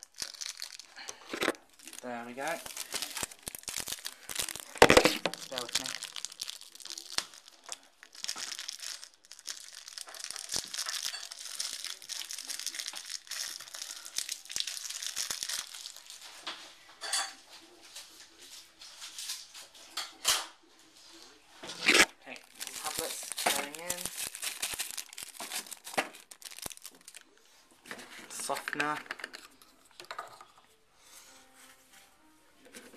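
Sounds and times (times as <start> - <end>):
plastic wrapping crinkling and tearing: 0.0 - 16.6, 21.7 - 29.7.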